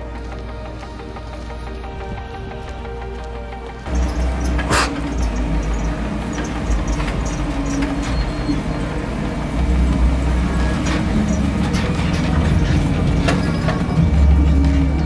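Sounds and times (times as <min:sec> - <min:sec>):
bass-heavy background music: 0:00.0 - 0:15.0
car engine running: 0:02.9 - 0:15.0.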